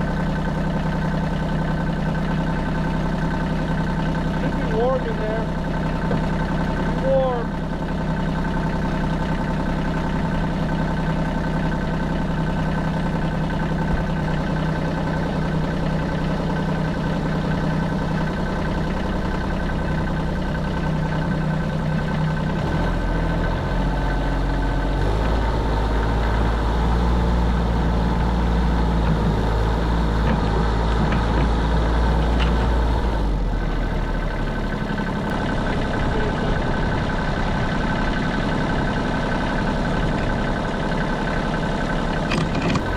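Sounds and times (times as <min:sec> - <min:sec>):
vehicle engine running: 0:00.0 - 0:42.9.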